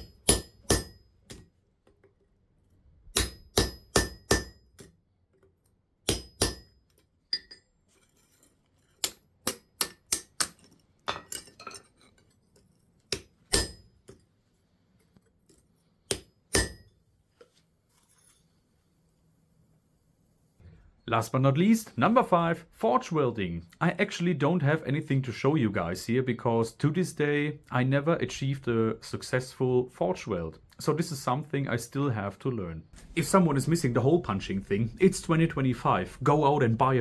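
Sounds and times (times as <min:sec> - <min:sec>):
hammer striking chisel on metal: 0:00.0 - 0:01.5, 0:03.1 - 0:05.0, 0:06.1 - 0:07.7, 0:09.0 - 0:11.8, 0:13.0 - 0:14.2, 0:15.5 - 0:17.0.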